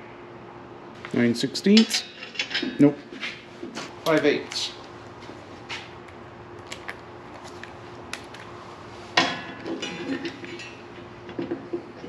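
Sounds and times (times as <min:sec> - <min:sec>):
metal tools clinking: 0:01.8 - 0:02.9, 0:09.4 - 0:11.0.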